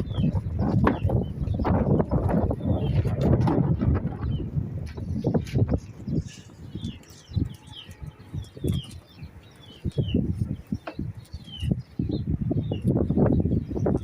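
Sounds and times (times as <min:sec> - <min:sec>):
bird chirping: 0:00.0 - 0:04.5, 0:05.2 - 0:14.0.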